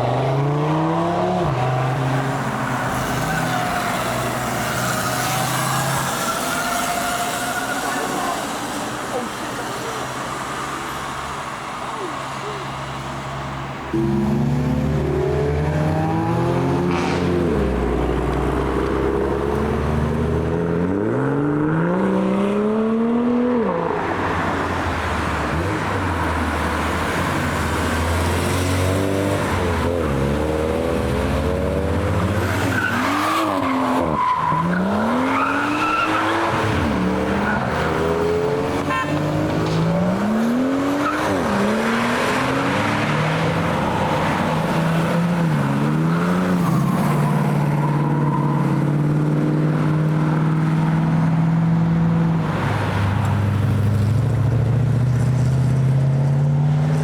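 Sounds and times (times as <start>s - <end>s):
car engines accelerating: 0.0s - 57.0s
tyre squeal: 2.8s - 9.3s, 32.4s - 38.0s, 38.8s - 39.5s.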